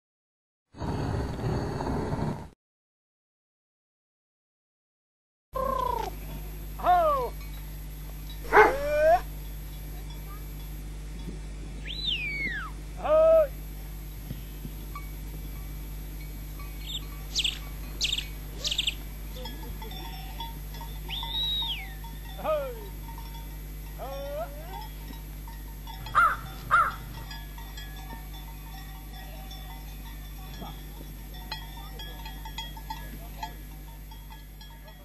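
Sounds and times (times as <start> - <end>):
steady low hum: 5.6 - 35.0
birds chirping and whistling: 11.8 - 12.8, 16.8 - 19.1, 21.1 - 22.0, 26.1 - 27.2.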